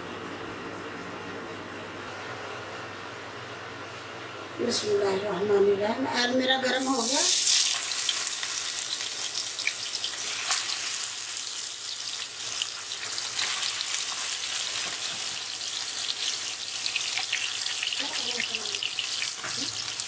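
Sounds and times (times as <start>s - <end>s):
kebabs sizzling in oil: 6.7s - 20.0s.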